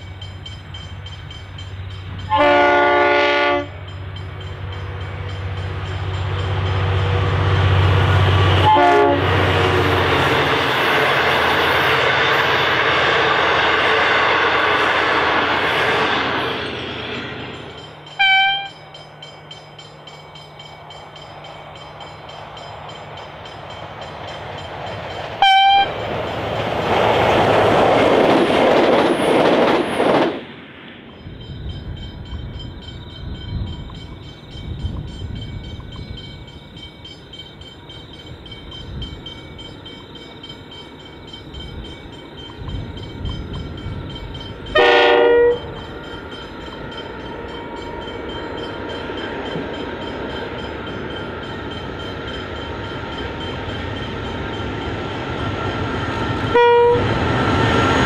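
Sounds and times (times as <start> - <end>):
diesel freight train rumbling: 0.0 - 58.0
train passing: 0.0 - 58.0
multi-note train horn chord: 2.3 - 3.8, 8.5 - 9.4, 18.2 - 18.8, 25.4 - 25.9, 44.8 - 45.7, 56.5 - 57.1
train horn toots: 2.3 - 3.9, 8.2 - 9.7, 18.2 - 18.8, 25.4 - 26.0, 44.7 - 45.8, 56.5 - 57.2.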